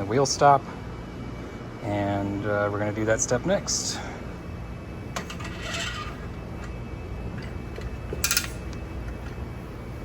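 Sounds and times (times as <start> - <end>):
metal clinks and scrapes: 5.2 - 6.3.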